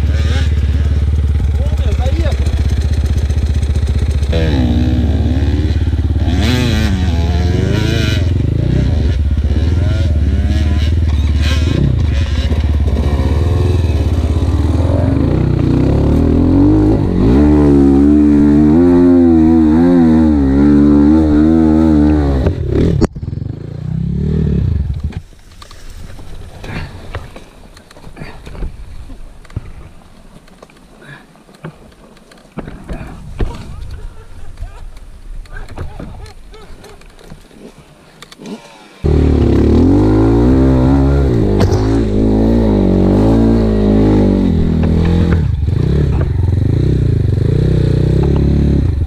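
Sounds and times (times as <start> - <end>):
dirt bike engine revving: 0.0 - 25.2, 37.6 - 49.0.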